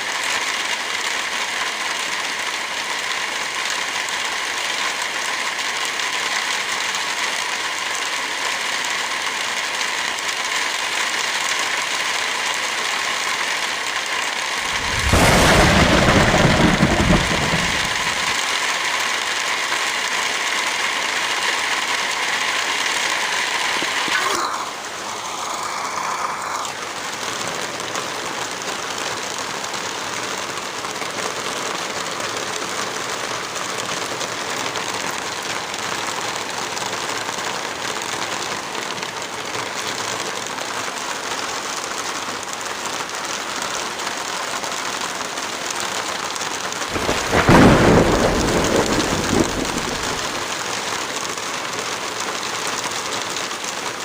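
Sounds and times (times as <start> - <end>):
heavy rain falling: 0.0 - 54.0
loud low rumble: 14.6 - 18.4, 47.0 - 50.4.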